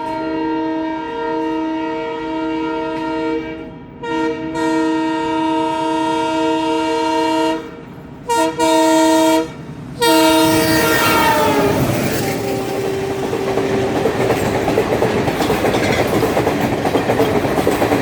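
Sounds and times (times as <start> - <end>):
locomotive air horn blasts: 0.0 - 13.8
approaching train rumble: 0.0 - 18.0.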